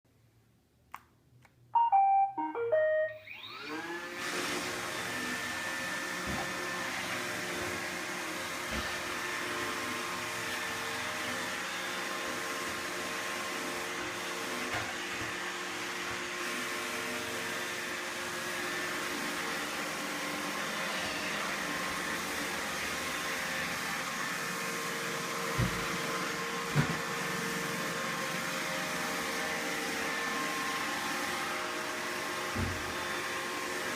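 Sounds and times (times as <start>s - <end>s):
robot vacuum start-up beeps: 1.8s - 3.8s.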